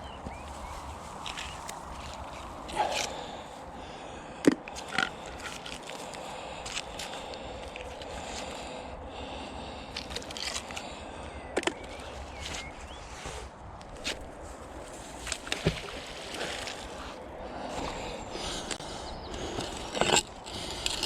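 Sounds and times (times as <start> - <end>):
water sloshing: 14.1 - 18.8.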